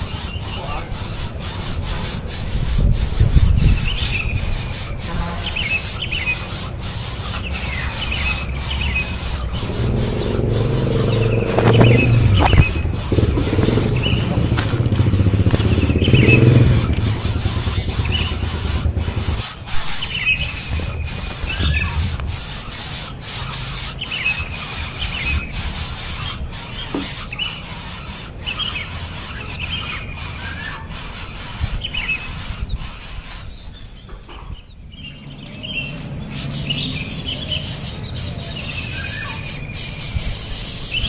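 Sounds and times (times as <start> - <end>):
baby birds chirping: 0.0 - 41.0
low engine rumble: 8.4 - 19.6.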